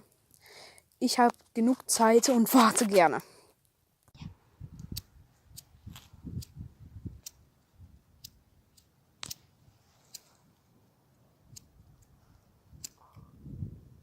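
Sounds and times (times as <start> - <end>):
campfire crackling: 0.0 - 2.0.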